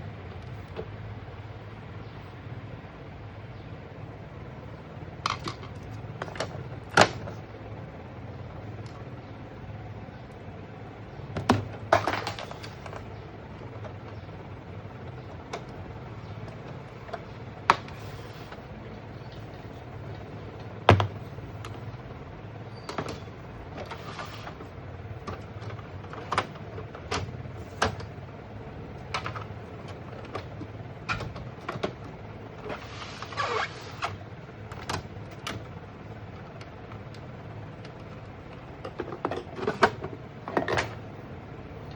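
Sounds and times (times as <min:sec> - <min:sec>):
steady low hum: 0:00.0 - 0:41.9
plastic parts clicking and knocking: 0:05.2 - 0:07.4, 0:11.3 - 0:22.0, 0:22.7 - 0:41.2.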